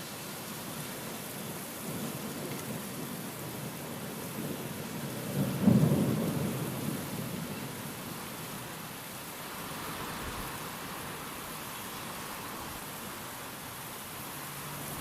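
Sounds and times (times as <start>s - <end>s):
steady rain: 0.0s - 15.0s
thunder rumbling: 4.4s - 7.5s.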